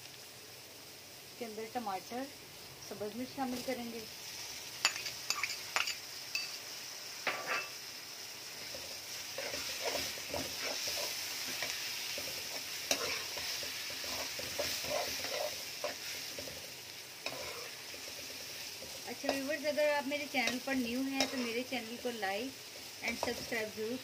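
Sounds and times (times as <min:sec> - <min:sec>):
vegetables sizzling in hot oil: 0:00.0 - 0:24.0
metal spoon scraping a pan: 0:04.8 - 0:06.6, 0:07.2 - 0:07.8, 0:08.6 - 0:21.7.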